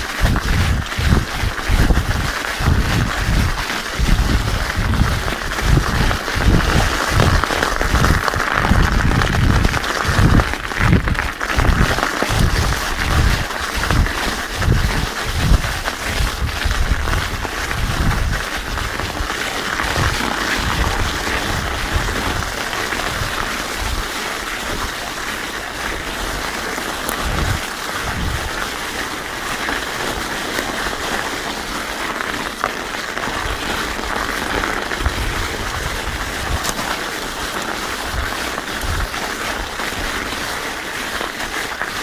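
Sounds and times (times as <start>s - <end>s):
wind buffeting microphone: 0.0s - 24.1s, 27.1s - 28.7s, 35.0s - 37.0s
bike tires crunching on ice: 0.0s - 42.0s.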